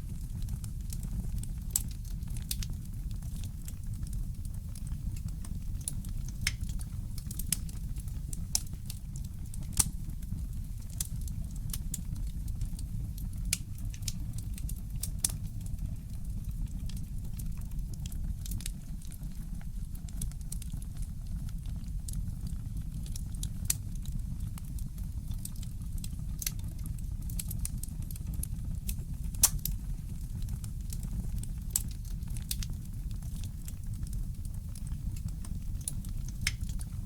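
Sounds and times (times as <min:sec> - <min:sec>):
fireplace crackling: 0:00.0 - 0:17.0, 0:27.3 - 0:37.0.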